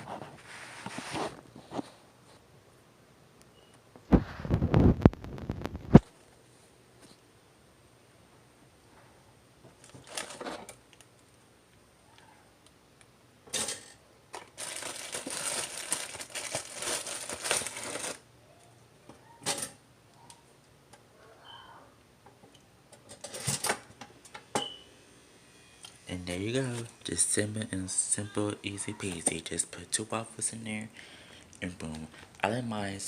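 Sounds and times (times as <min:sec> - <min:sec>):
plastic packaging crinkling: 0:09.8 - 0:11.2, 0:14.4 - 0:18.2.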